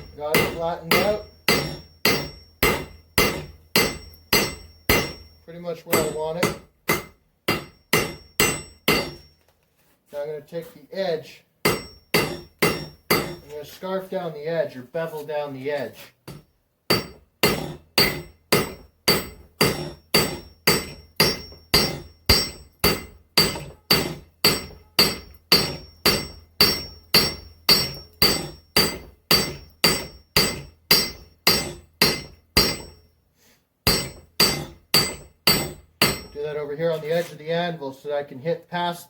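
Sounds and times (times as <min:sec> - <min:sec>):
hammer ringing on anvil: 0:00.0 - 0:09.4, 0:11.6 - 0:13.5, 0:16.3 - 0:33.1, 0:33.9 - 0:36.4.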